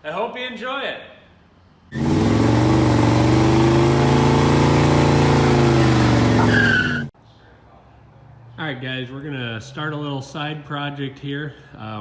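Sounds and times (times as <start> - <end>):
tyre squeal: 1.9 - 2.5, 4.8 - 7.1
car engine revving: 1.9 - 7.1.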